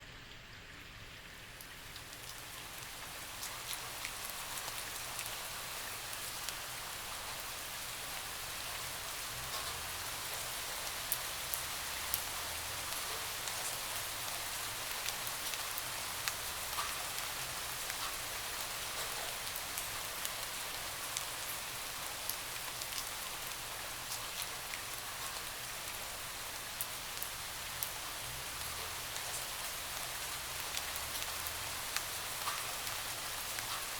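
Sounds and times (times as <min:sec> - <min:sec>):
steady rain: 0:00.0 - 0:33.9
raindrops tapping: 0:09.3 - 0:21.6, 0:26.8 - 0:33.9.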